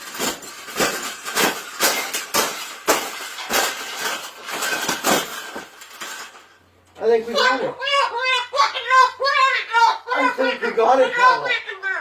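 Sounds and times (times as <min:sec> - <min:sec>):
hard knocks: 0:00.0 - 0:06.2
clattering: 0:00.0 - 0:07.1.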